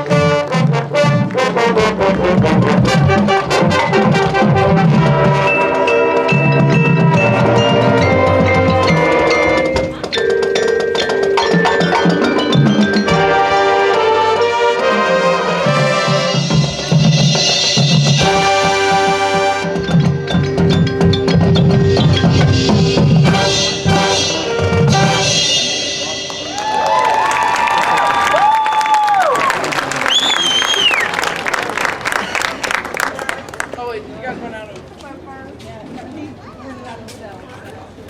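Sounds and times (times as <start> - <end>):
wind and brass chords: 0.0 - 10.1, 11.3 - 26.5
drums: 0.0 - 31.0
mallet percussion: 2.4 - 13.9, 15.6 - 27.0.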